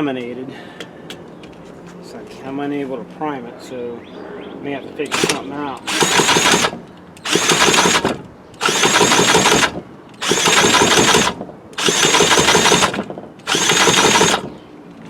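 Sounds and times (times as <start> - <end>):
chainsaw recoil starter cranking: 5.1 - 14.6.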